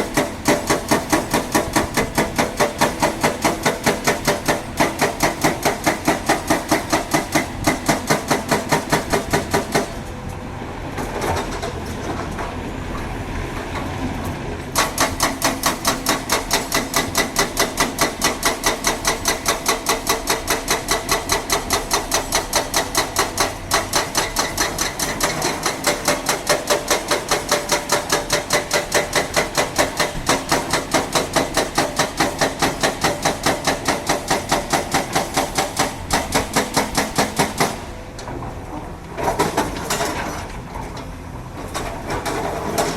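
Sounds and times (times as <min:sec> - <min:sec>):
hydraulic breaker hammering: 0:00.0 - 0:10.0, 0:14.7 - 0:38.6.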